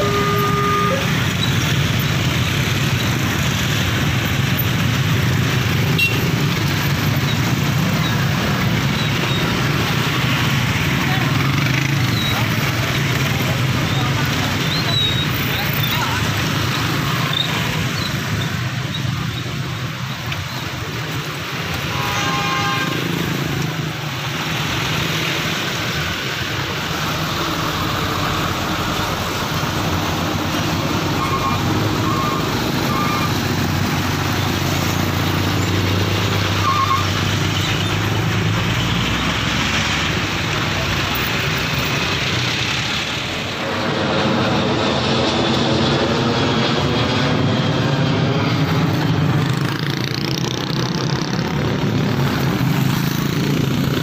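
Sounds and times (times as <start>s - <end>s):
short horn toots: 0.0s - 1.2s
motorbikes and cars passing: 0.0s - 54.0s
jet airliner taking off: 43.0s - 53.9s.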